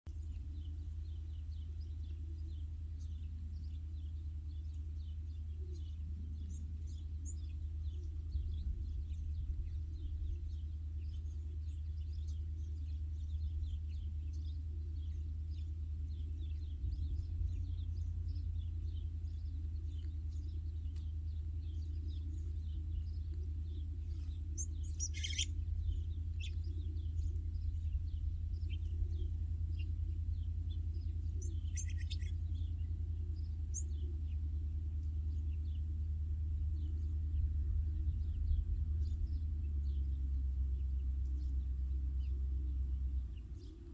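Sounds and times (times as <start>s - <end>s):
small birds chirping: 0.1s - 43.9s
steady low rumble: 0.1s - 43.9s
loud bird call: 25.0s - 25.6s.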